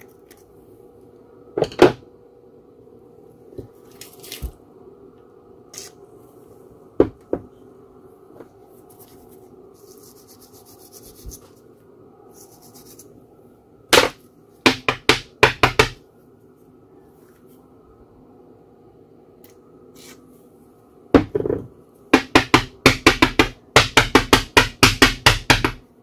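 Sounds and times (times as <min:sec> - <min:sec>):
steady low hum: 0:00.0 - 0:26.0
scratchy rubbing: 0:08.8 - 0:11.6, 0:12.3 - 0:13.2.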